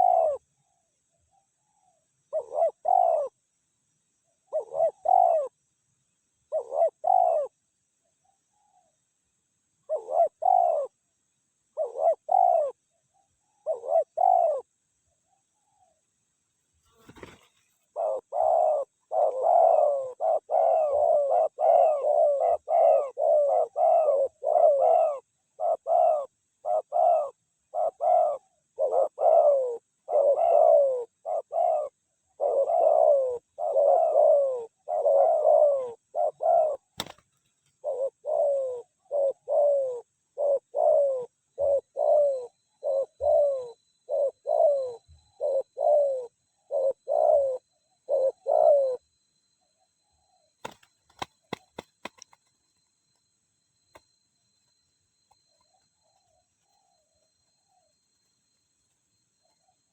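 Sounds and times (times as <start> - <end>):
doves cooing: 0.0 - 0.4, 2.3 - 3.4, 4.5 - 5.6, 6.5 - 7.6, 9.8 - 11.0, 11.8 - 12.8, 13.6 - 14.7, 16.9 - 49.1, 50.6 - 52.9.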